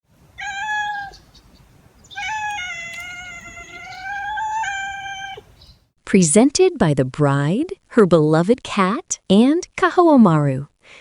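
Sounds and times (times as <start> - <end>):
cat meowing: 0.3 - 5.6.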